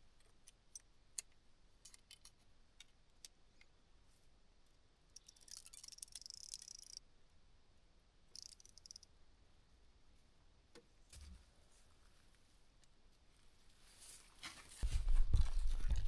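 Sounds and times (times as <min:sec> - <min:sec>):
faint clicks: 0:08.3 - 0:09.1.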